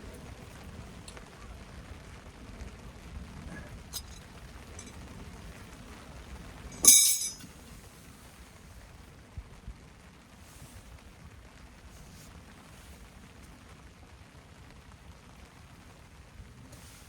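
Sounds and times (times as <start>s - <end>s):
metal camping gear clinking: 3.9s - 5.0s, 6.7s - 7.6s.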